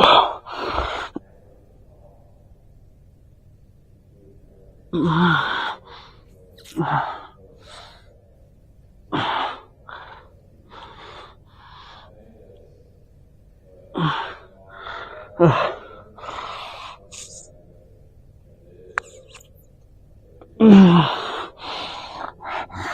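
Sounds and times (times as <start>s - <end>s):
person breathing heavily: 0.0s - 1.2s, 9.1s - 12.4s, 13.9s - 17.5s, 20.6s - 22.9s
person gasping: 20.6s - 22.9s.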